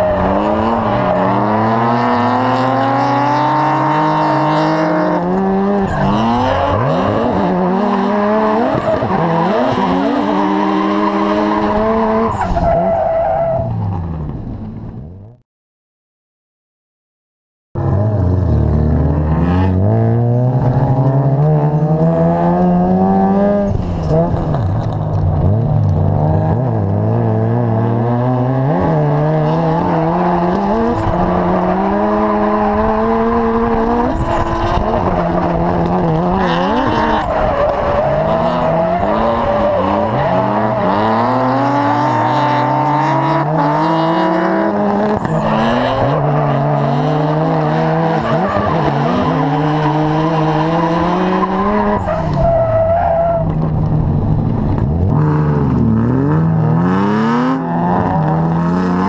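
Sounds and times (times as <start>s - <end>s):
car engine revving hard: 0.0s - 12.4s, 25.4s - 52.8s, 55.0s - 59.0s.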